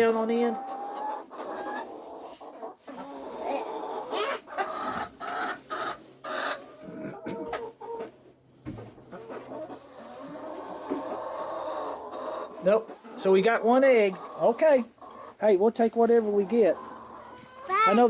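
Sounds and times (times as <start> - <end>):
hens clucking: 0.0 - 18.0
knocks and rustles: 8.6 - 9.1.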